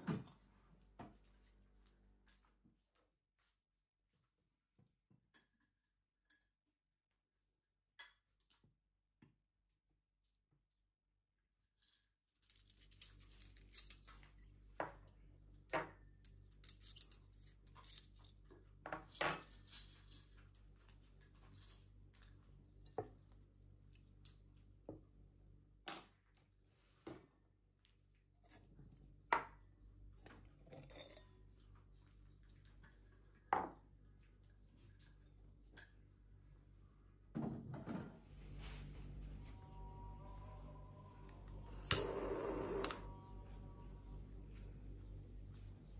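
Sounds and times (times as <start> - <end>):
steady low hum: 38.4 - 45.9.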